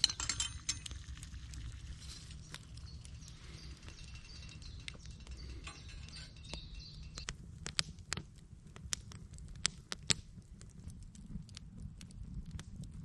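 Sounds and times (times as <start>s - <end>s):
faint high chirps: 2.3s - 7.3s
sharp clicks and ticks: 2.5s - 13.0s.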